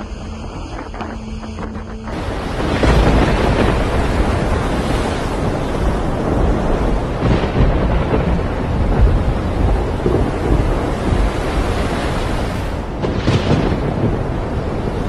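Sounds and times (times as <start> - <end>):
heavy rain: 0.0 - 15.0
strong wind buffeting microphone: 0.0 - 15.0.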